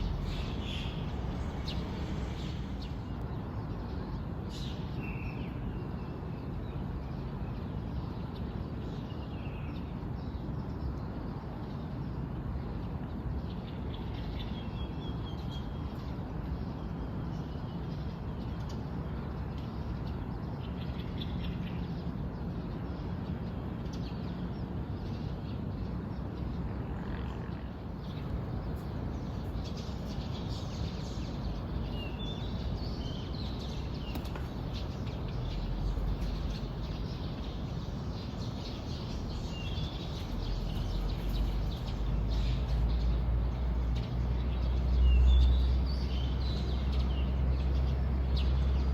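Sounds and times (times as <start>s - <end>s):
birds chirping: 0.0s - 3.2s, 27.8s - 48.9s
low rumble: 0.0s - 3.2s
steady outdoor hiss: 0.0s - 48.9s.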